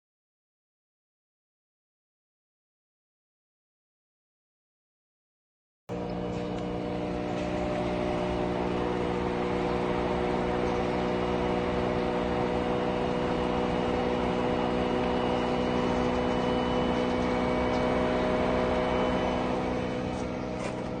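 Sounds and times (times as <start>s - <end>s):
washing machine spinning: 5.9s - 21.0s.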